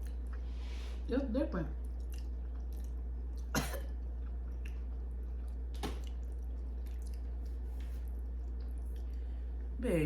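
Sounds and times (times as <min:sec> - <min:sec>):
steady low hum: 0:00.0 - 0:10.0
person coughing: 0:03.5 - 0:04.0.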